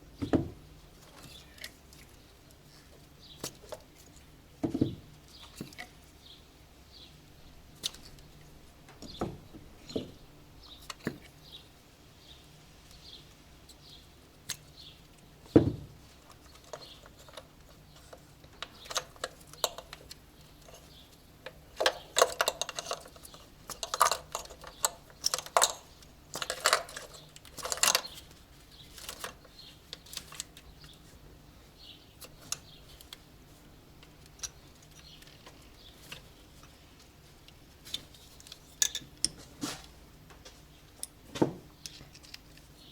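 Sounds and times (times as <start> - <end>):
hand tools and metal parts clinking: 16.2 - 31.0, 37.8 - 39.9, 40.5 - 42.9.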